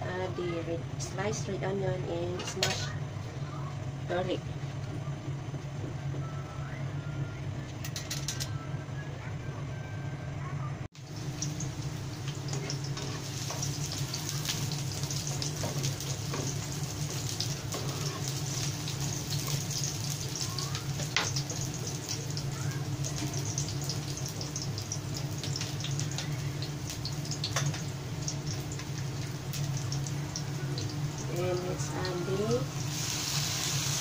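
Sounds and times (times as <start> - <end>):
onion and garlic sizzling in oil: 11.0 - 34.0.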